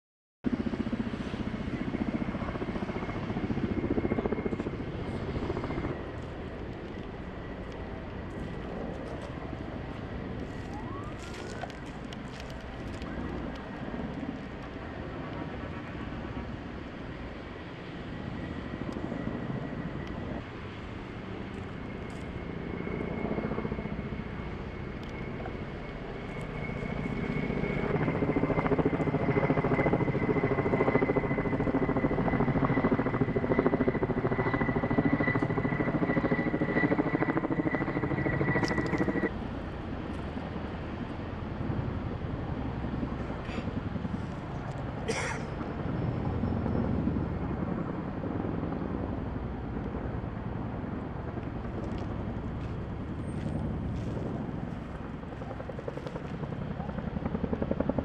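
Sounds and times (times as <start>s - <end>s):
high steady whine: 32.8s - 39.3s.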